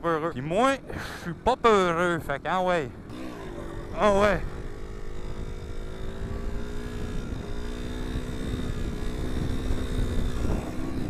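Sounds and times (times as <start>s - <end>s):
motorcycle engine: 0.0s - 11.0s
wind rumble on microphone: 3.0s - 11.0s.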